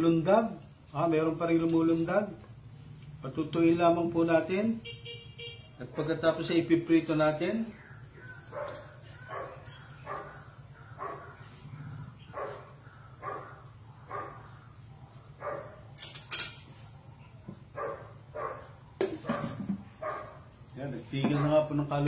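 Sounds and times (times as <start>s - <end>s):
dog barking: 8.2s - 11.5s, 12.3s - 14.5s, 15.4s - 15.9s, 17.8s - 20.5s.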